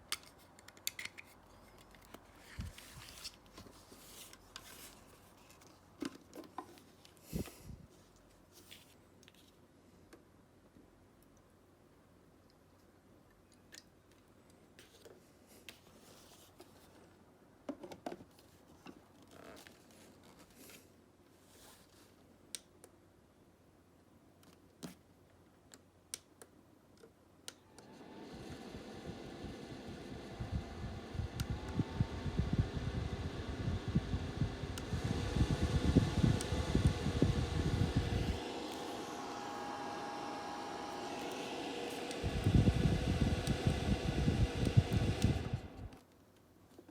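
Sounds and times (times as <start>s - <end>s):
low room noise: 0.0s - 46.9s
fan airflow buffeting microphone: 7.3s - 7.9s, 28.0s - 46.0s
fan motor whine: 27.7s - 46.0s.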